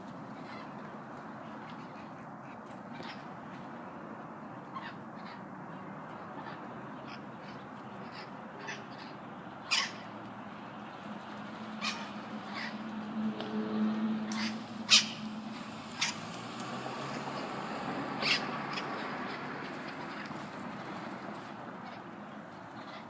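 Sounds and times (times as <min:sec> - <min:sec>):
parrots giving harsh calls: 0:09.7 - 0:10.0, 0:11.8 - 0:12.9, 0:14.3 - 0:16.2, 0:18.2 - 0:20.3.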